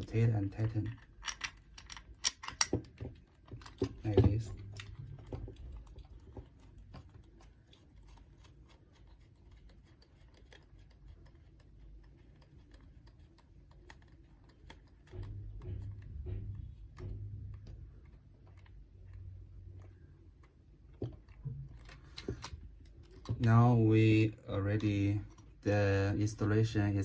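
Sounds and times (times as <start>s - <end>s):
small plastic clicks: 0.6s - 4.0s.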